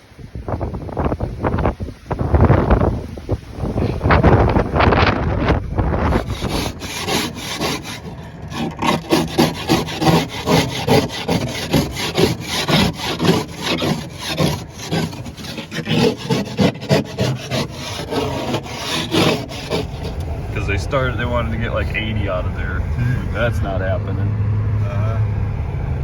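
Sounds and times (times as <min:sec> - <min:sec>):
rhythmic scraping strokes: 0:06.0 - 0:23.5.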